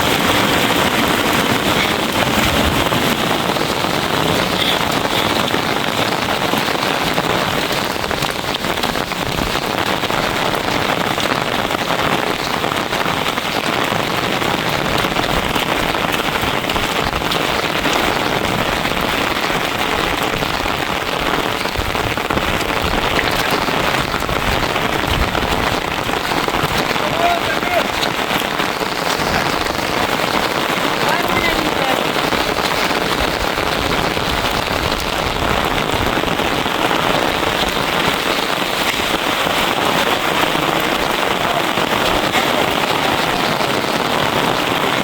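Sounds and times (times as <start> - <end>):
loud rain falling: 0.0 - 45.0.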